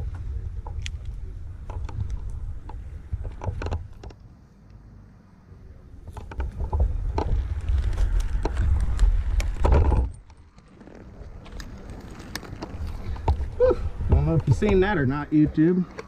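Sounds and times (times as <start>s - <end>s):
low uneven rumble: 0.0s - 16.0s
climbing spikes knocking on wood: 13.2s - 15.0s.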